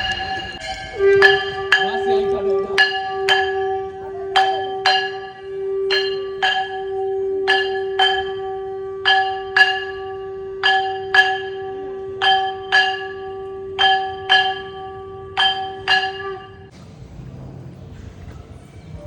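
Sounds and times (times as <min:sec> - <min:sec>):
bell strikes: 0:00.0 - 0:16.7
steady held tone: 0:00.0 - 0:16.7.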